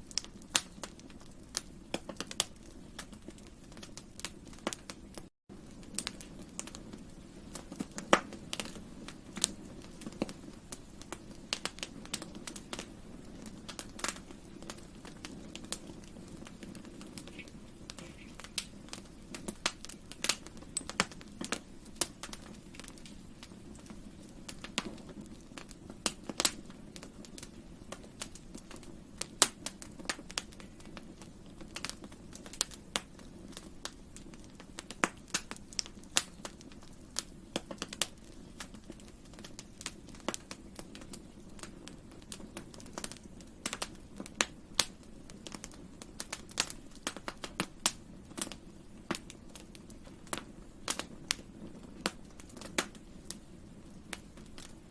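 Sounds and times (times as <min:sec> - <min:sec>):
burning wood popping and snapping: 0:00.0 - 0:54.9
low fire roar: 0:00.0 - 0:54.9.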